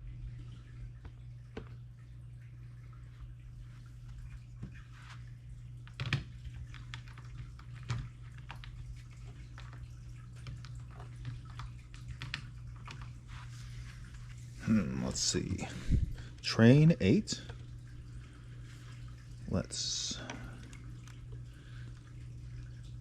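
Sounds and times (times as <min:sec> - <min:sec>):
water trickling and dripping: 0:00.0 - 0:23.0
fish tank pump humming: 0:09.5 - 0:23.0.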